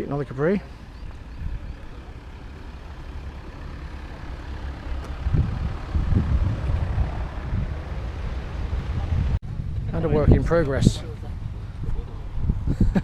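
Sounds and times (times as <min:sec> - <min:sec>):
wind buffeting microphone: 0:00.9 - 0:02.0, 0:04.9 - 0:13.0.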